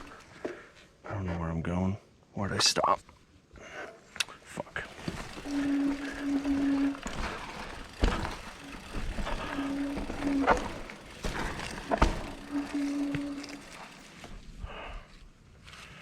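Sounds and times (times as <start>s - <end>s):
bike buzzing: 0.0s - 0.3s, 4.8s - 15.0s
bike knocking over rough ground: 0.0s - 0.3s, 4.8s - 14.6s.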